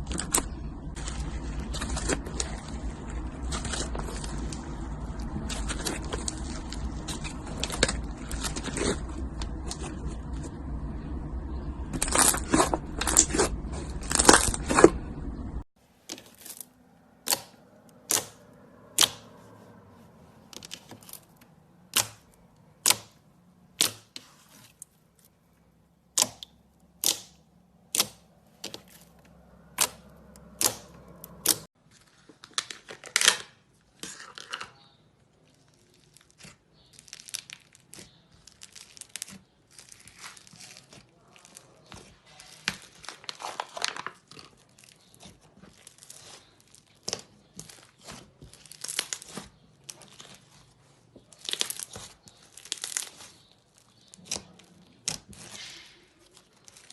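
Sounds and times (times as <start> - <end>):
low rumble: 0.0 - 15.7
slime crackling: 0.0 - 19.4, 20.3 - 31.7, 33.9 - 56.9.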